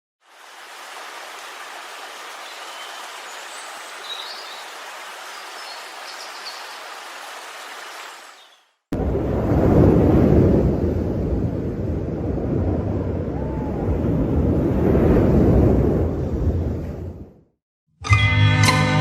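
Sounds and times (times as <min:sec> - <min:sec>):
steady rain falling: 0:00.2 - 0:08.6.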